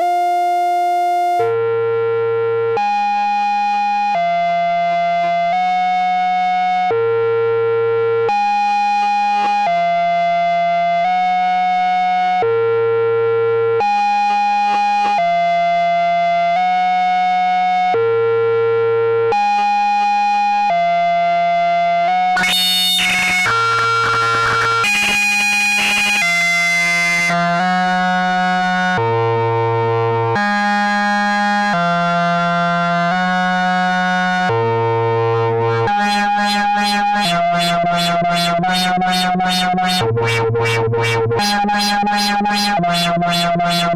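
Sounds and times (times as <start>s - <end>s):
analogue synthesizer sequence: 22.4s - 27.6s, 35.1s - 43.9s.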